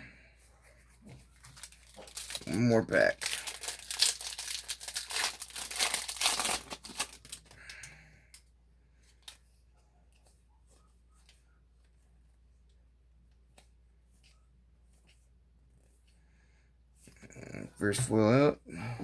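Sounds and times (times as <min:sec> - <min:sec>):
foil wrapper tearing and crinkling: 0:01.5 - 0:07.9.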